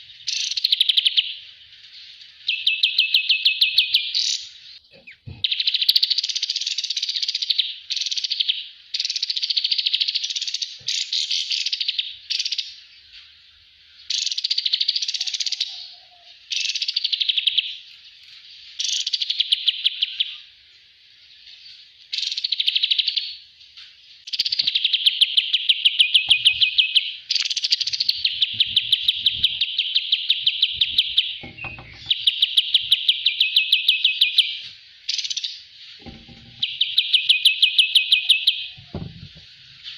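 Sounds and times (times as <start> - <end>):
songbird trilling: 2.4 - 12.8, 24.3 - 39.1.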